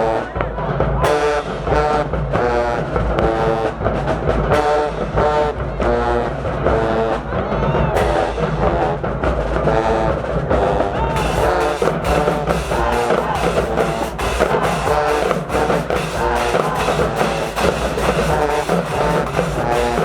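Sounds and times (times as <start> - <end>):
bass drums and percussion: 0.8 - 20.0
brass chord blasts: 11.2 - 20.0.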